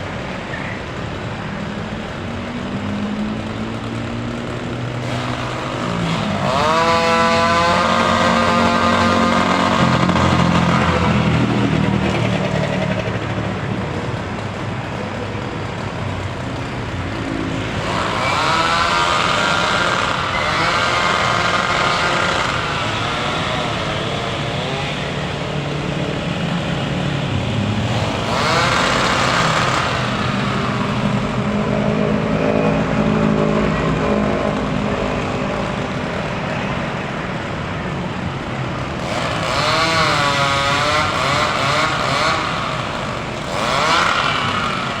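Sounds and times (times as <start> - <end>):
small petrol engines revving: 0.0 - 45.0.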